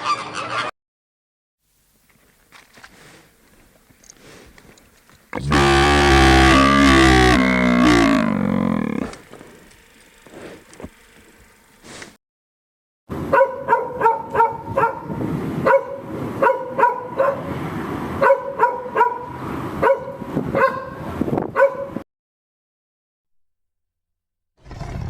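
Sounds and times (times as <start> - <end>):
dog barking: 13.3 - 15.0, 15.6 - 17.5, 18.2 - 21.0, 21.6 - 22.0.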